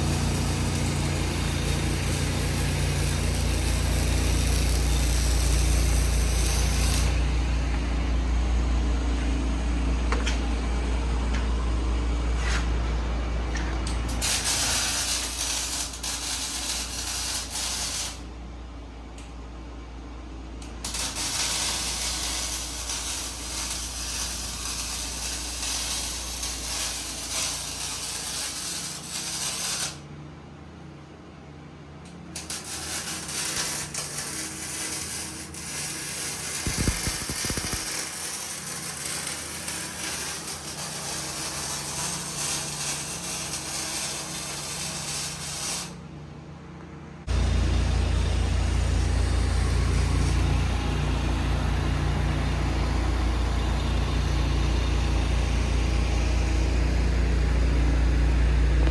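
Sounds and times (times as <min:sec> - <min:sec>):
welding arc crackling hiss: 0:00.0 - 0:07.9, 0:13.6 - 0:18.3, 0:20.6 - 0:30.1, 0:32.3 - 0:46.0, 0:47.3 - 0:57.8
low engine hum: 0:00.0 - 0:14.6, 0:46.4 - 0:58.9.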